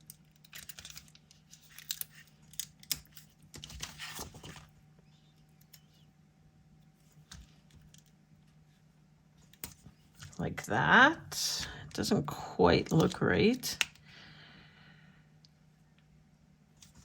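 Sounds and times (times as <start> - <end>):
paper and stickers clicking and rustling: 0.0 - 4.7
faint steady hum: 0.0 - 17.0.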